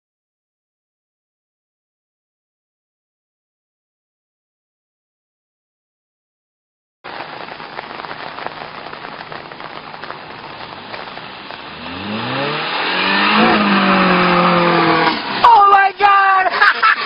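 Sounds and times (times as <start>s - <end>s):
car engine with loud exhaust: 7.1s - 17.0s
exhaust crackling and rattling: 7.1s - 17.0s.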